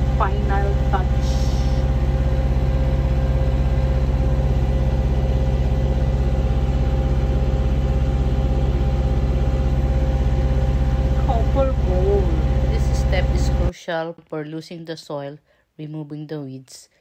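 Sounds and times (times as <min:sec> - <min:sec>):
tractor engine running: 0:00.0 - 0:13.7.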